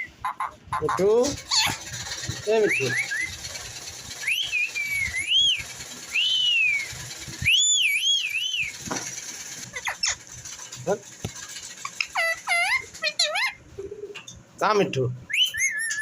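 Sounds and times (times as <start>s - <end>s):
whistled warbles: 2.5s - 3.5s, 4.1s - 8.9s, 15.3s - 16.0s
person whistling: 4.3s - 8.7s.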